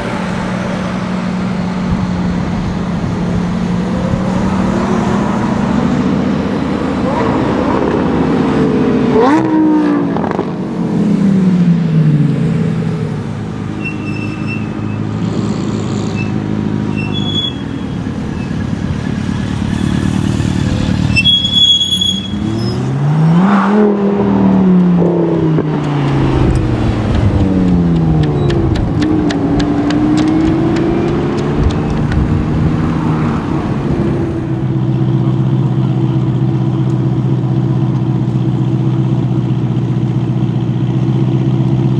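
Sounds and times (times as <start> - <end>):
car engines revving past: 0.0 - 39.2
engine idling: 34.4 - 41.9.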